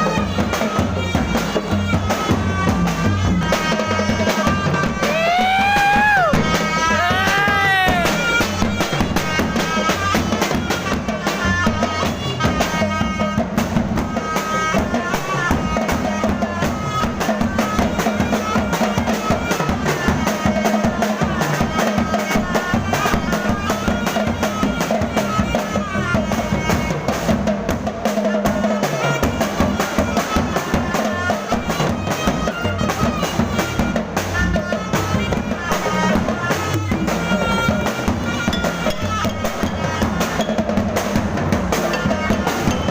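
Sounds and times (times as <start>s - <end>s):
driving drums and percussion: 0.0s - 42.9s
wind instrument melody: 0.0s - 42.9s.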